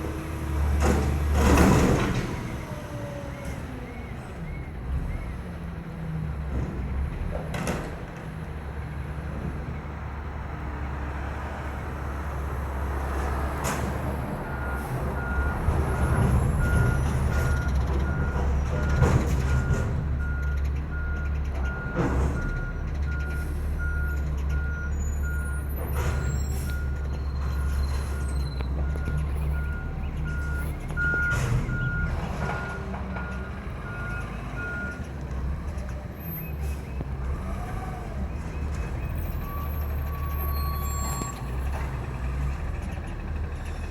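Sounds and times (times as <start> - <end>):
garbage truck diesel engine: 0.0 - 43.9
reversing alarm beeps: 14.4 - 35.0.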